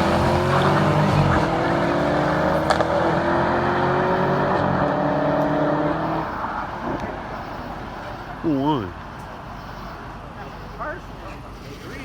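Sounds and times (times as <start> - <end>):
race car engines accelerating: 0.0 - 12.0.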